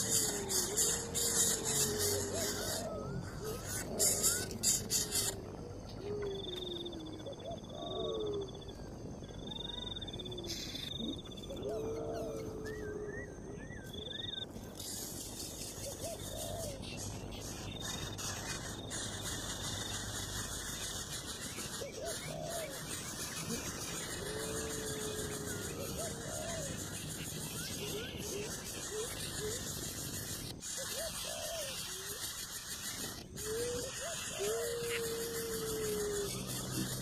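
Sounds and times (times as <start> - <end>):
birds hooting: 0.0 - 37.0.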